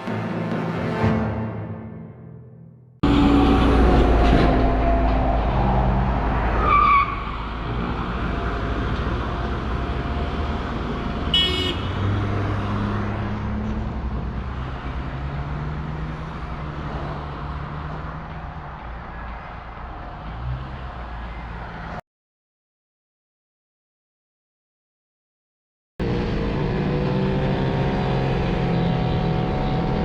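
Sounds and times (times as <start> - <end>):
vehicle engine and wind rumble: 3.0 - 22.0, 26.0 - 30.0.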